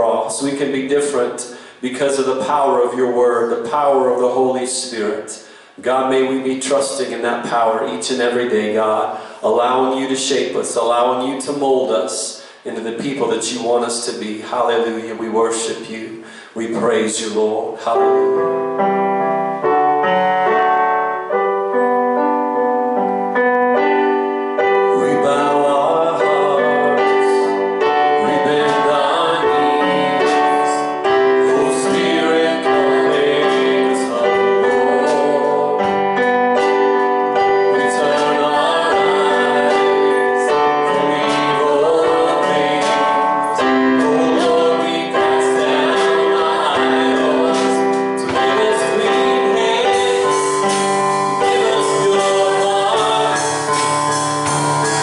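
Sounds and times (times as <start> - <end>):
keyboard chords: 17.7 - 55.0
voices singing: 24.7 - 55.0.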